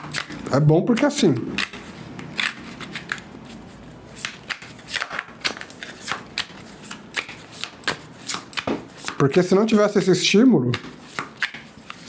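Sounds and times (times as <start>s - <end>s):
cards being shuffled by hand: 0.0s - 12.0s.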